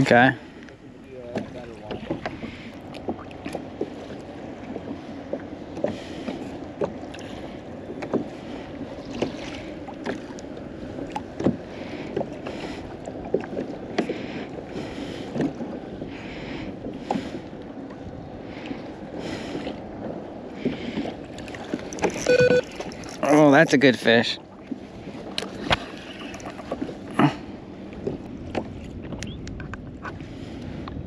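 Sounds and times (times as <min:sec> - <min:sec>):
water lapping against hull: 0:00.0 - 0:31.0
small knocks on hull: 0:01.3 - 0:04.0, 0:07.9 - 0:08.3, 0:11.1 - 0:12.3
wind rumble: 0:24.4 - 0:31.0.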